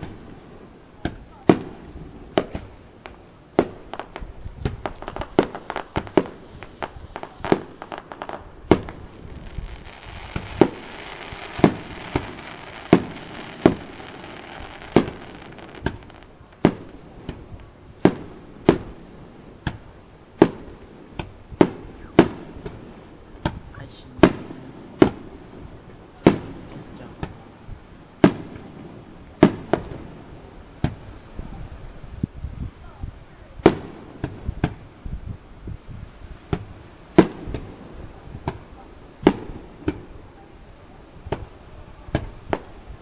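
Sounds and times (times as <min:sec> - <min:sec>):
fireworks bangs: 0:00.0 - 0:31.7, 0:33.5 - 0:35.1, 0:36.3 - 0:43.0
fireworks crackling: 0:00.0 - 0:43.0.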